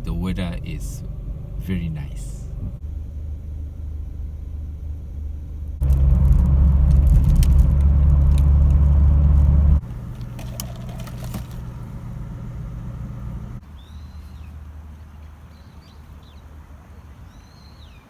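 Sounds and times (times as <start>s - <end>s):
car engine and road rumble: 0.0s - 17.8s.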